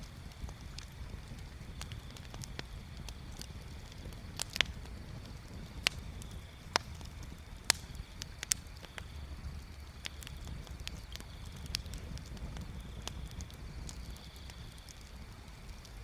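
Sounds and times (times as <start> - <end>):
low steady rumble: 0.0 - 16.0
sharp pops and snaps: 0.0 - 16.0
wood bonfire crackling: 0.0 - 16.0.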